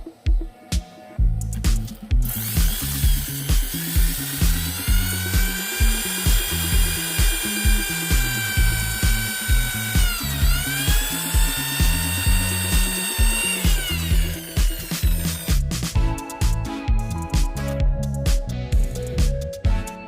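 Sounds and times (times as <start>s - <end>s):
dance music with kick drum: 0.0s - 19.9s
power tool motor whining: 2.2s - 15.9s.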